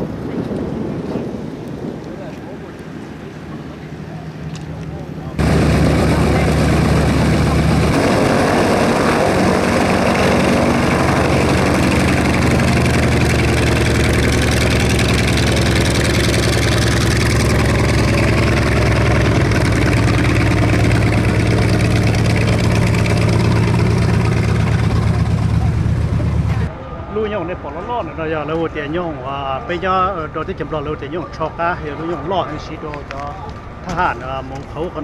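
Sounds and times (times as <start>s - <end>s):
loud engine idling: 5.4s - 26.7s.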